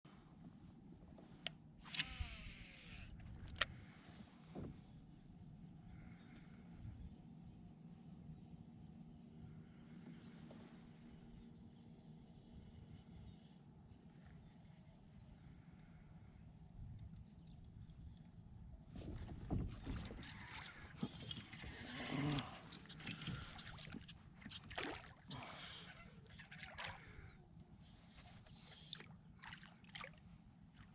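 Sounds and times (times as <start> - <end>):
wind: 0.0 - 30.9
low rumble of water: 15.4 - 30.9.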